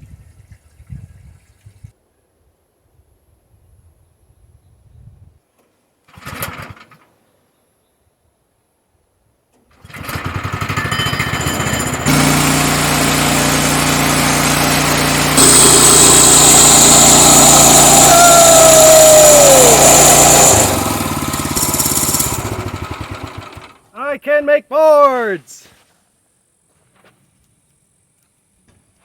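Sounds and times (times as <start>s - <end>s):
small gasoline engine running: 9.7s - 23.9s
band blade whining: 15.3s - 22.7s.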